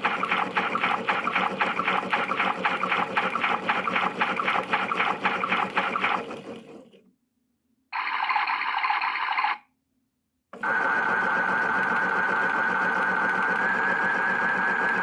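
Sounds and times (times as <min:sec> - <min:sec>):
toy electronic churning sound: 0:00.0 - 0:06.2, 0:08.0 - 0:09.7.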